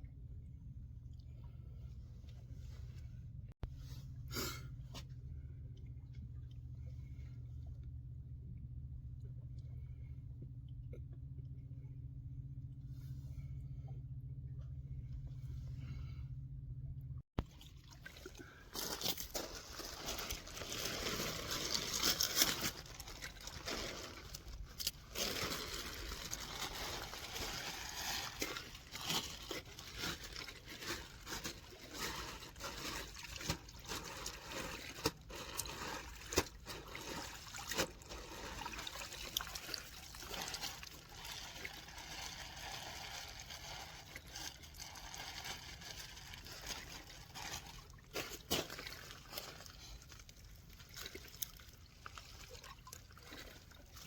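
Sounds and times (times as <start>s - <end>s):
water trickling and lapping: 17.4s - 54.0s.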